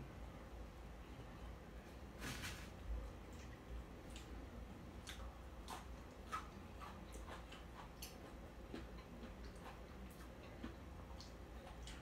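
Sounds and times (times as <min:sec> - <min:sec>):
person chewing food: 0:03.2 - 0:12.0.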